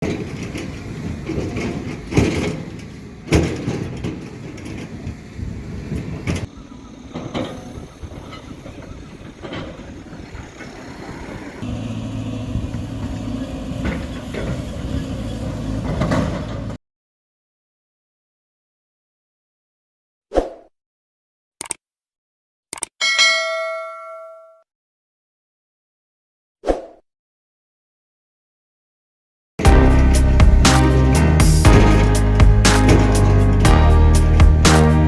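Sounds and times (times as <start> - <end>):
heavy machinery diesel engine: 0.0 - 16.8, 29.6 - 35.0
loud metallic clanks: 29.6 - 35.0.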